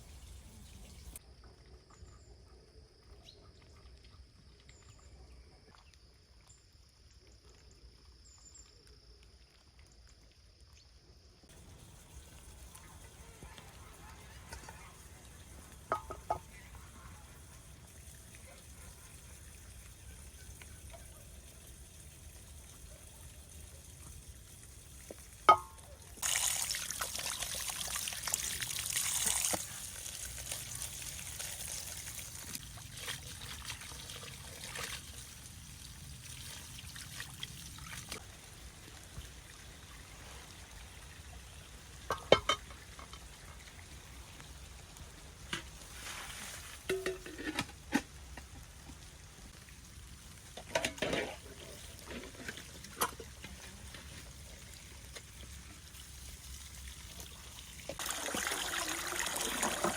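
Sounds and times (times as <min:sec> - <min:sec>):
liquid pouring: 0:11.5 - 0:44.4, 0:45.6 - 0:59.9
cookware knocking: 0:15.9 - 0:16.5, 0:42.2 - 0:42.6.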